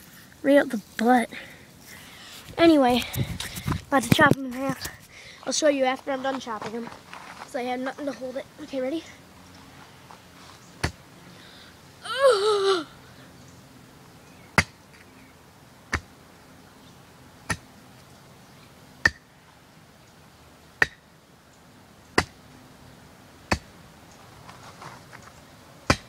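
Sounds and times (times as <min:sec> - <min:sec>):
axe chopping: 0:10.8 - 0:11.0, 0:14.6 - 0:14.8, 0:19.0 - 0:19.2, 0:20.8 - 0:21.0, 0:22.2 - 0:22.4, 0:23.5 - 0:23.7
high wavering yell: 0:12.0 - 0:13.0.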